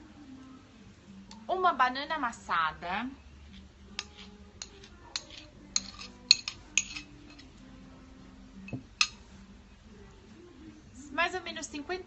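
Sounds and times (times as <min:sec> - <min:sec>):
utensils and dishes clinking: 0:04.0 - 0:07.6.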